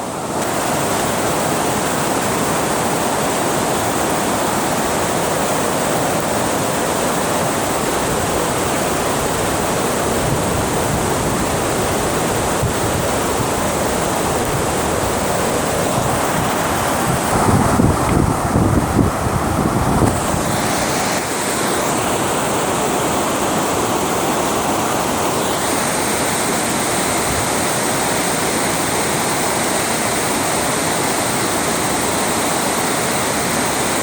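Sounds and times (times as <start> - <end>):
water rushing over a dam: 0.0 - 34.0.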